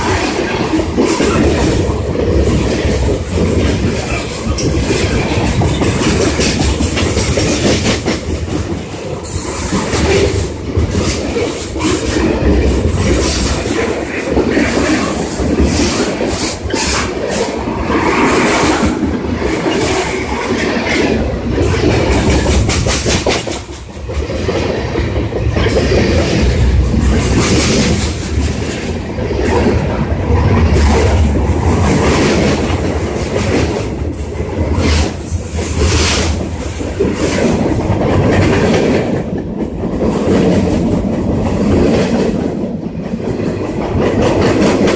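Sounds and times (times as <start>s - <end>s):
train wheel squeal: 0.0s - 7.6s
train wheels clacking over rail joints: 0.0s - 44.9s.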